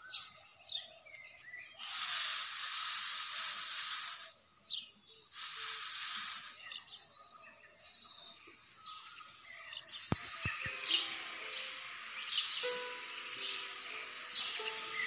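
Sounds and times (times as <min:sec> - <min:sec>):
small birds chirping: 0:00.0 - 0:15.0
burst of hissing noise: 0:01.8 - 0:04.4, 0:05.4 - 0:06.8, 0:10.2 - 0:15.0.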